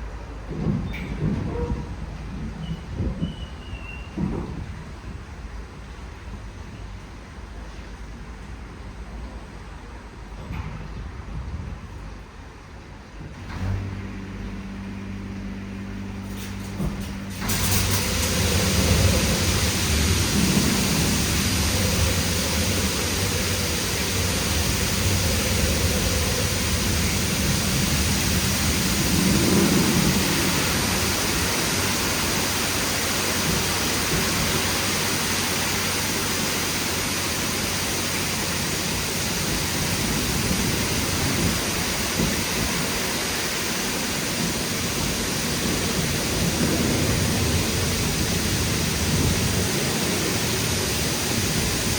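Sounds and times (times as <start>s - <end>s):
low hum: 13.7s - 33.2s
high-pressure water jets hissing: 16.2s - 51.9s.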